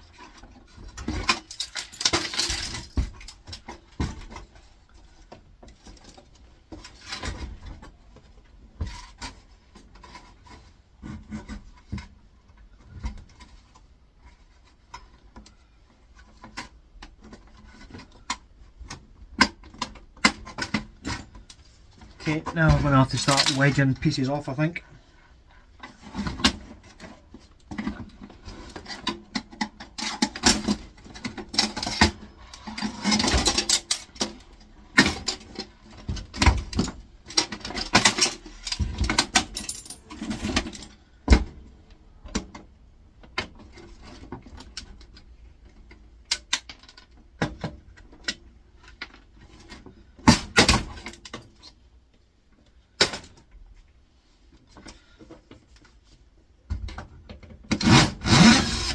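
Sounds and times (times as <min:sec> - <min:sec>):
plastic and metal parts prying: 0:00.1 - 0:24.0, 0:25.8 - 0:51.8.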